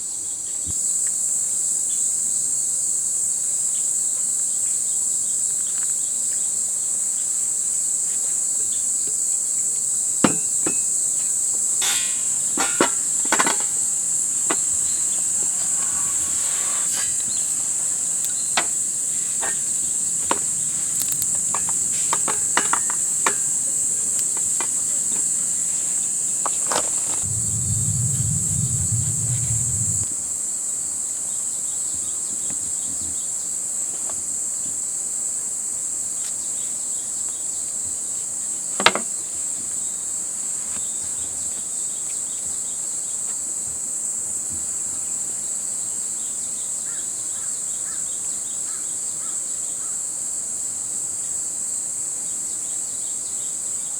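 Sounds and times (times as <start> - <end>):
insects chirring: 0.8 - 30.1
low rumble: 27.2 - 30.1.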